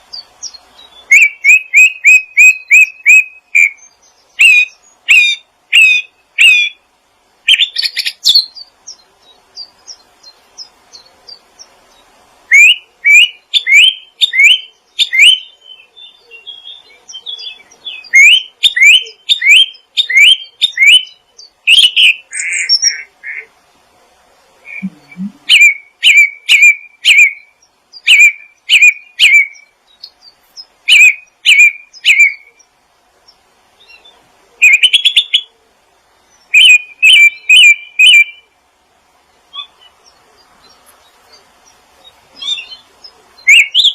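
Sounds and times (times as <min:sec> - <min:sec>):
small songbird chirping: 0:00.0 - 0:23.9, 0:24.6 - 0:38.6, 0:39.2 - 0:43.9.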